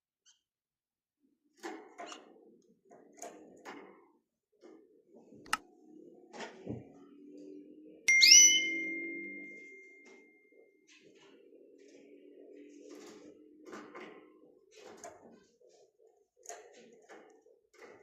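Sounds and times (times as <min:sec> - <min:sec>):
bright chime ringing: 0:08.1 - 0:10.2.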